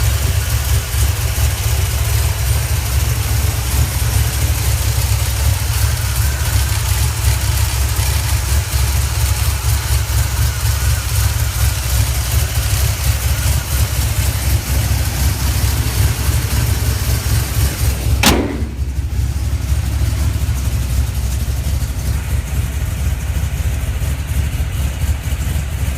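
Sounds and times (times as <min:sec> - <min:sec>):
engine idling: 0:00.0 - 0:25.9
sharp click: 0:18.2 - 0:18.9.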